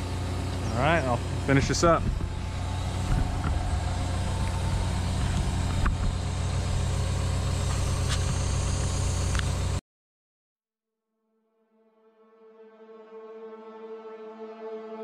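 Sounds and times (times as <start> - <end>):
diesel engine running: 0.0 - 9.8.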